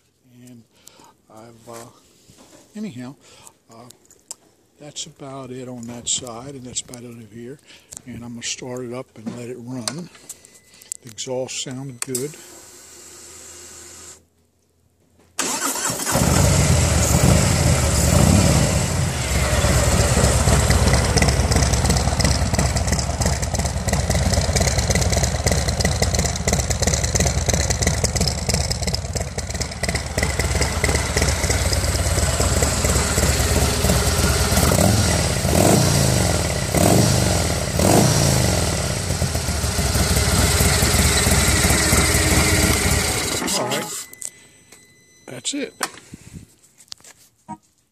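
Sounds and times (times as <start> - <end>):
motorcycle engine starting: 15.4 - 44.1
motorcycle engine revving: 15.5 - 43.4
motorcycle engine idling: 16.3 - 43.4.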